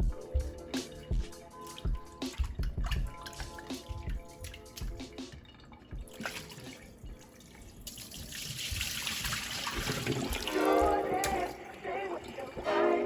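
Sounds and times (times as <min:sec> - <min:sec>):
tap water running into sink: 0:01.8 - 0:11.6.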